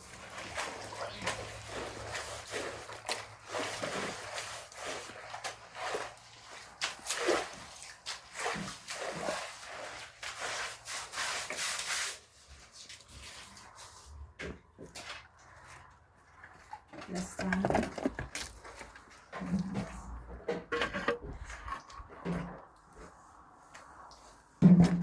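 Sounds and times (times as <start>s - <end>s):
wet cloth splashing and rubbing: 0.0s - 14.1s.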